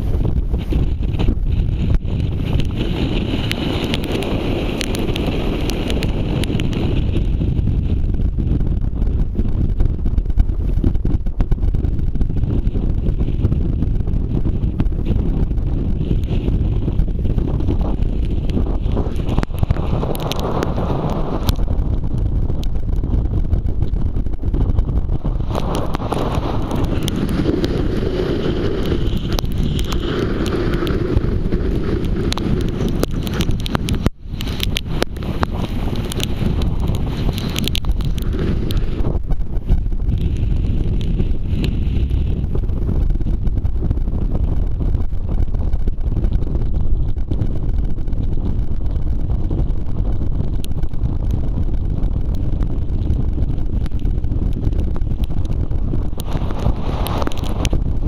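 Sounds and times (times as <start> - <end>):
wind buffeting microphone: 0.0 - 58.0
faint ticks: 1.9 - 6.8, 28.7 - 43.4, 50.5 - 58.0.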